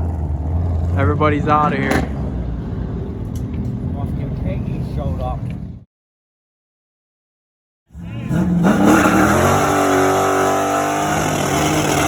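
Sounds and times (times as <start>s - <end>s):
car engine revving: 7.9s - 12.0s.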